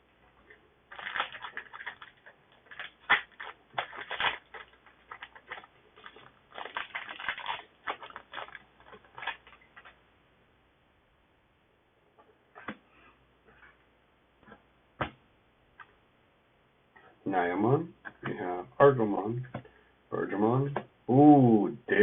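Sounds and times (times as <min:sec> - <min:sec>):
cards being handled: 0:00.9 - 0:10.0
foil pack crinkling and tearing: 0:00.9 - 0:10.0.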